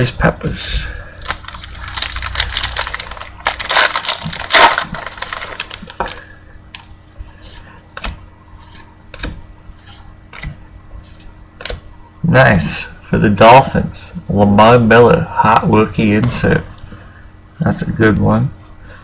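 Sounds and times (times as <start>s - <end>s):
foil wrapper crinkling: 1.2s - 6.3s
cards clicking and rustling: 1.2s - 6.9s.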